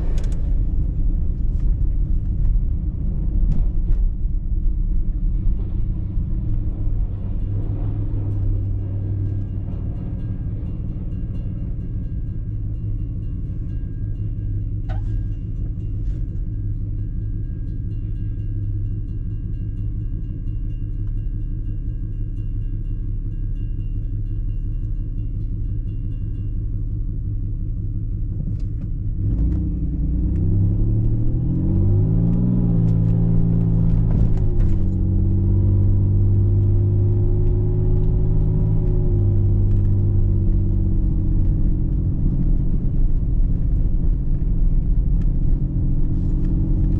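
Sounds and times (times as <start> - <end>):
car engine accelerating: 0.0 - 17.0, 26.8 - 46.9
road rumble: 0.0 - 46.9.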